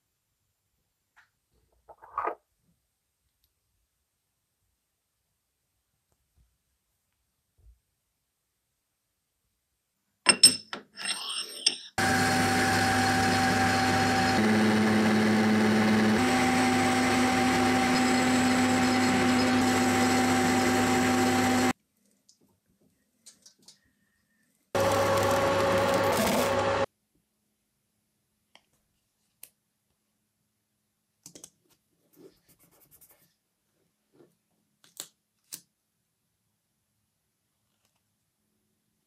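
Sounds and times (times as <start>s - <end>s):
small power tool running: 12.0s - 21.7s, 24.8s - 26.9s.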